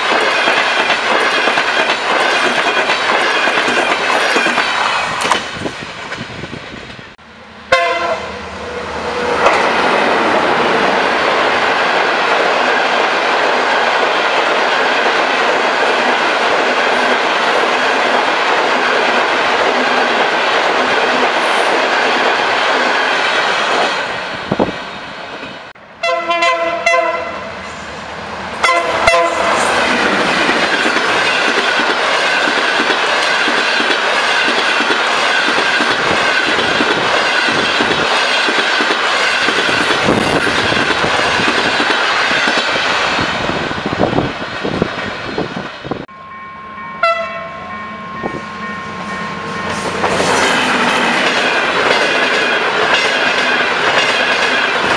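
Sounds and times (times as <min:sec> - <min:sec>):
train coaches rushing past: 0:00.0 - 0:54.9
locomotive horn: 0:07.6 - 0:09.6, 0:26.0 - 0:27.7, 0:28.6 - 0:29.8, 0:47.0 - 0:51.0.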